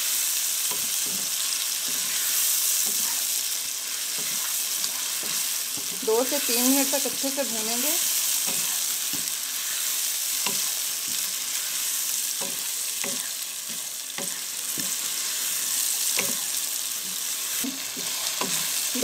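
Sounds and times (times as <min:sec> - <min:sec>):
chicken sizzling in hot oil: 0:00.0 - 0:19.0
wooden spatula scraping pan: 0:03.9 - 0:07.4.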